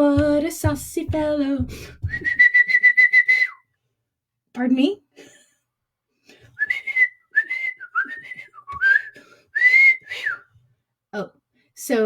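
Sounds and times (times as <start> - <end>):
person whistling chirping phrases: 2.1 - 3.6, 6.6 - 10.4.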